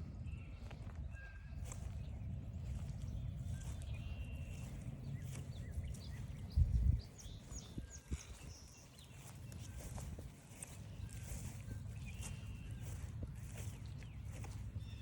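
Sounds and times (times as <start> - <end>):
steady low rumble: 0.0 - 15.0
footsteps on forest trail: 0.6 - 15.0
small birds chirping: 1.6 - 15.0.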